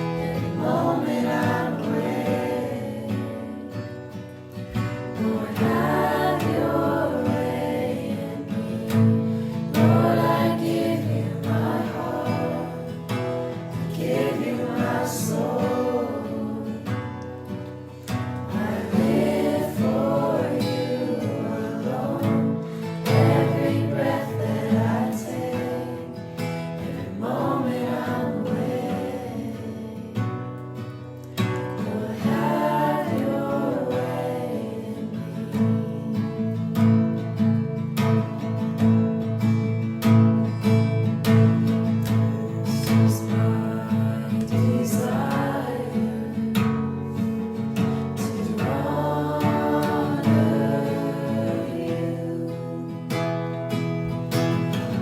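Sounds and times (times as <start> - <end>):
group singing a worship song: 0.0 - 37.0, 41.2 - 55.0.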